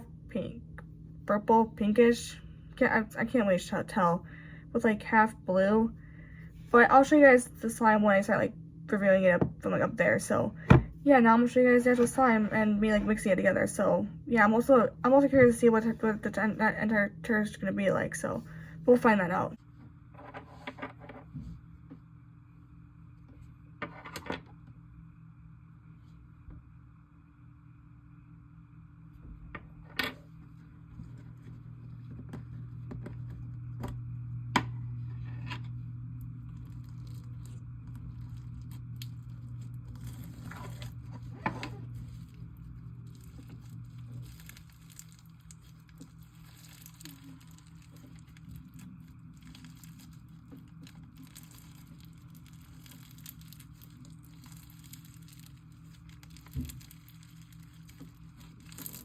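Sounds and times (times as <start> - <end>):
slime tearing and crackling: 43.0 - 59.0.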